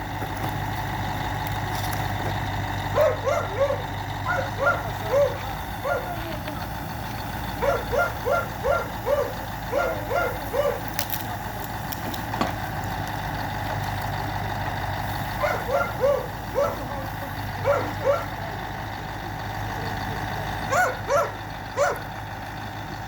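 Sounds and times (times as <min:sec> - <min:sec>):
truck engine idling: 0:00.0 - 0:23.0
dog barking: 0:02.9 - 0:06.3, 0:07.6 - 0:11.0, 0:15.4 - 0:18.5, 0:20.7 - 0:22.1.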